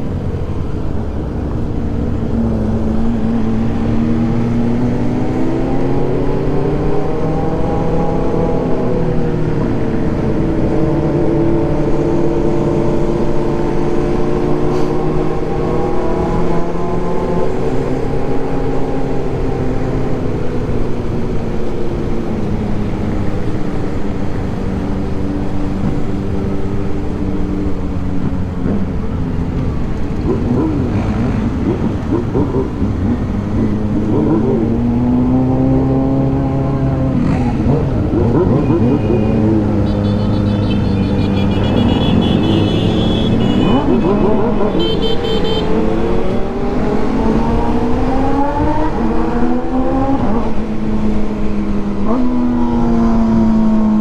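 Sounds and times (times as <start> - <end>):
motorcycle engine running: 37.2 - 46.2.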